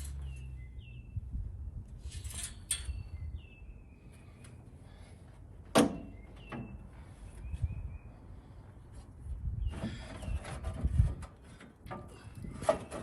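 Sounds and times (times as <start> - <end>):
small birds chirping: 0.0 - 1.4, 2.8 - 10.8.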